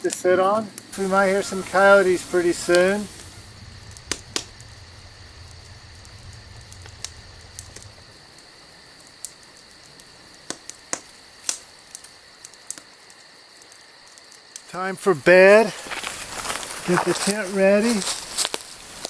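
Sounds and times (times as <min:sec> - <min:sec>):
campfire crackling and popping: 0:00.0 - 0:19.0
low rumble: 0:00.9 - 0:11.2.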